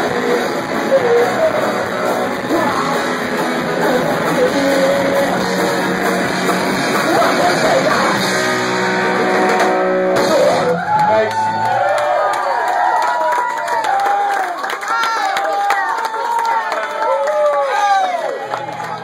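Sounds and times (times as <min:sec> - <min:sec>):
live punk band playing: 0:00.0 - 0:12.0
crowd yelling and cheering: 0:00.0 - 0:19.0.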